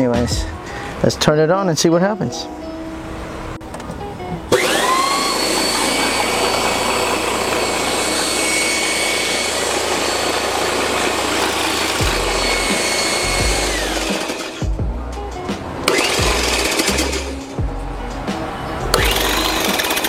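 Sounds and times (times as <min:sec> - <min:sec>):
electric motor whine and hum: 0:04.4 - 0:14.8, 0:15.8 - 0:17.6, 0:18.9 - 0:20.0.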